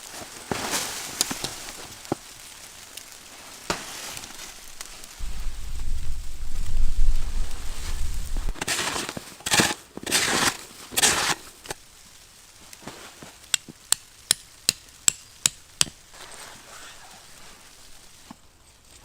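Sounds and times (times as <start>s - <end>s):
rough scraping noises: 3.7s - 11.8s, 16.1s - 19.0s.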